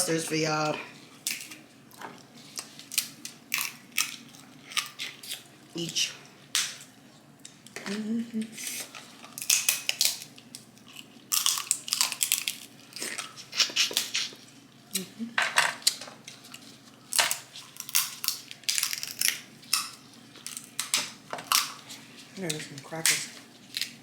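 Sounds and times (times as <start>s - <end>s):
crab shells cracking: 1.2s - 1.6s, 2.6s - 5.4s, 9.3s - 14.3s, 17.1s - 21.8s, 22.4s - 24.0s.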